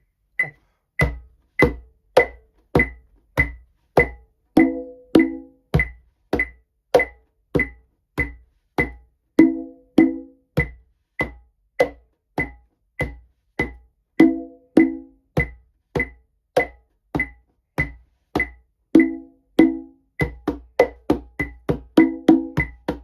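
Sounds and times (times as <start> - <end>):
conga drum strokes: 0.4 - 7.8, 8.8 - 10.4, 13.6 - 23.0
metronome click: 1.6 - 7.8, 16.0 - 17.4.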